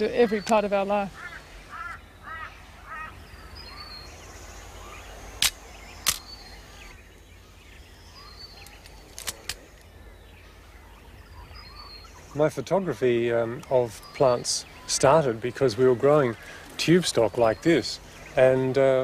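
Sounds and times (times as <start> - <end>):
birds calling: 0.0 - 19.0
sharp cracks: 5.4 - 6.4, 8.6 - 9.9.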